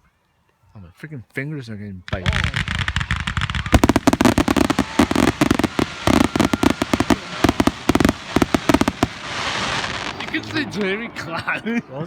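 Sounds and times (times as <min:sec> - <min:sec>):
fireworks bangs and crackles: 0:02.1 - 0:11.0.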